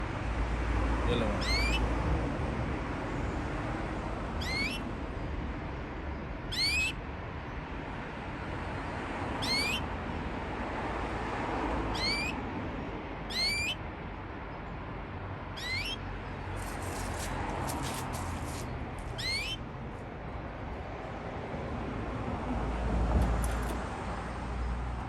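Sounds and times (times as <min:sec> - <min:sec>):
canary short rising call: 0:01.4 - 0:01.8, 0:04.4 - 0:04.8, 0:06.5 - 0:06.9, 0:09.4 - 0:09.8, 0:12.0 - 0:12.4, 0:13.3 - 0:13.8, 0:15.6 - 0:16.0, 0:19.2 - 0:19.6.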